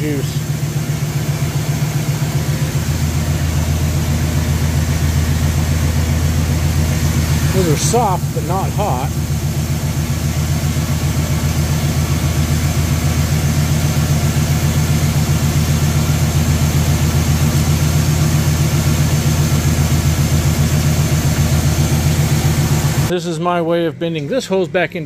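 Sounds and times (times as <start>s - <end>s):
car engine idling: 0.0s - 25.0s
electric radiator fans running: 0.0s - 25.0s.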